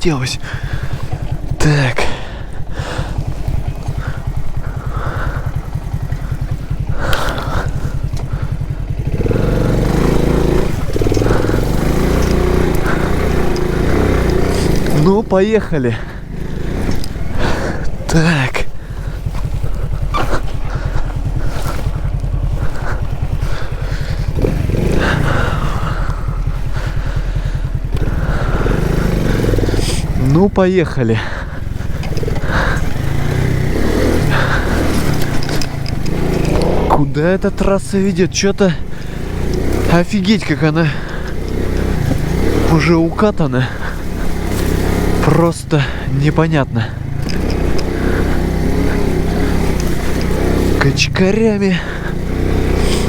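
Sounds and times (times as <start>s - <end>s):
moped engine idling and revving: 0.0s - 53.0s
short rattle: 31.6s - 37.0s.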